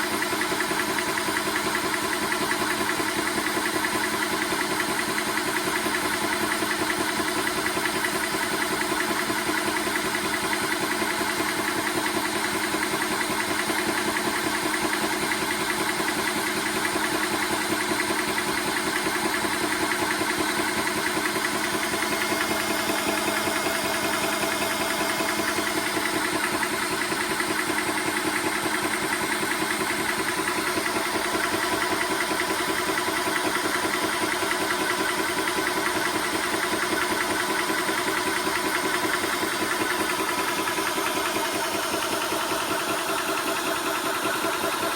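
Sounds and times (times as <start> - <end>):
air compressor pumping: 0.0 - 44.9.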